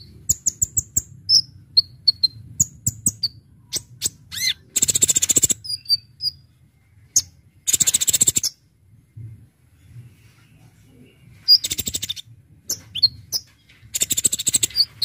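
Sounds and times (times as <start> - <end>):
sunbird chirps: 0.0 - 8.6, 10.1 - 15.0
fast rattling bird trills: 0.3 - 6.4, 7.6 - 8.6, 11.5 - 15.0.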